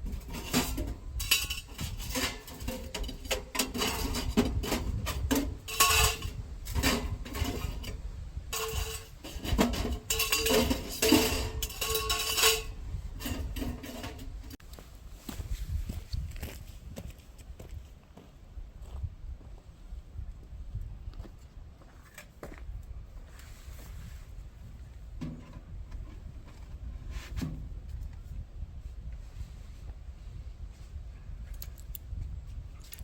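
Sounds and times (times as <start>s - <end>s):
metal clanking and clinking: 0.0s - 14.6s.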